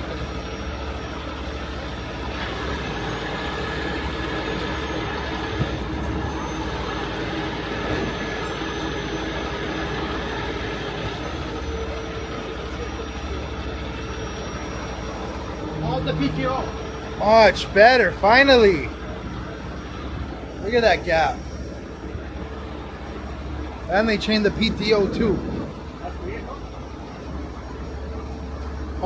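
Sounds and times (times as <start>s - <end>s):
diesel engine under load: 0.0s - 29.0s
hydraulic whine: 0.0s - 29.0s.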